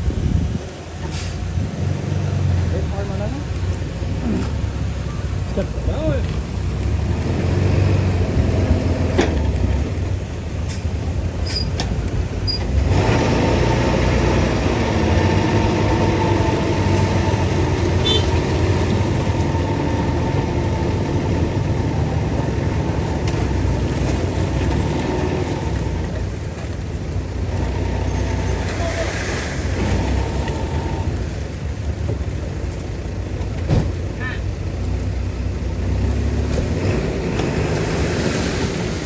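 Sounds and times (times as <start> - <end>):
heavy diesel engine running: 0.0 - 39.0
brief high squeaks: 11.4 - 11.8.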